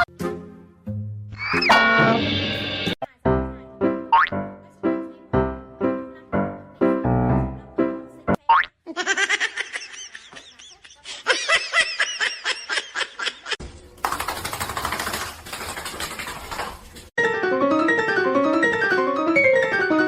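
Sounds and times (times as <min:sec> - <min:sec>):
piano music: 0:00.0 - 0:08.4, 0:17.2 - 0:20.0
person laughing: 0:08.9 - 0:13.6.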